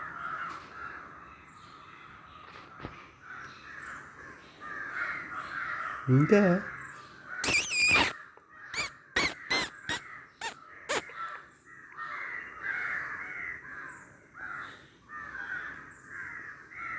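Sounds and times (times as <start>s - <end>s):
animal calls: 7.4s - 8.2s, 8.8s - 11.3s.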